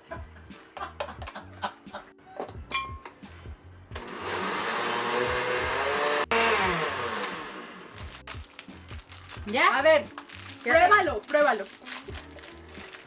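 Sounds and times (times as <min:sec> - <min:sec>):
kitchen blender running: 0:04.0 - 0:08.2.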